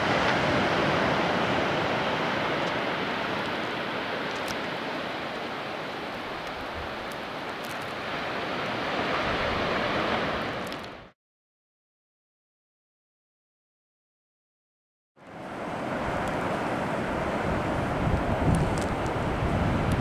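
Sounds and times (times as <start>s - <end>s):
waves washing onto beach: 0.0s - 11.2s, 15.2s - 20.0s
wind: 0.0s - 11.2s, 15.2s - 20.0s.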